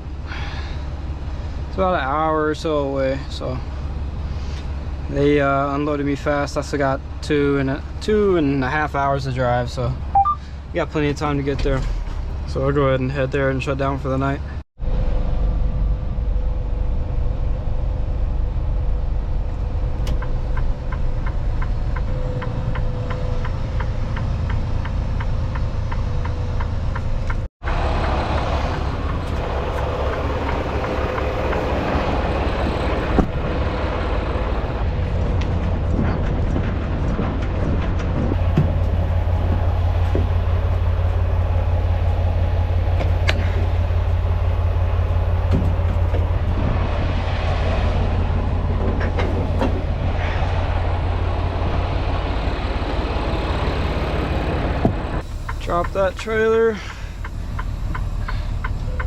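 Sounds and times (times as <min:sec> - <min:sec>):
road rumble: 0:00.0 - 0:59.0
truck diesel engine drone: 0:00.0 - 0:59.0
even ticking: 0:55.3 - 0:59.0.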